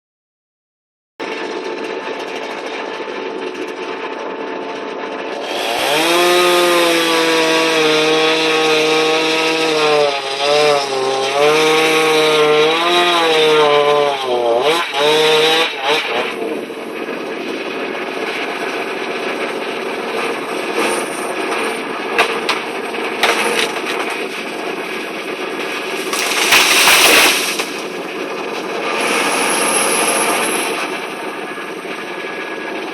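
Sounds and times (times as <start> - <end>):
excavator running: 1.2 - 6.7, 14.2 - 32.9
saw whining through wood: 4.8 - 32.9
sharp cracks: 22.2 - 24.5, 25.7 - 28.7.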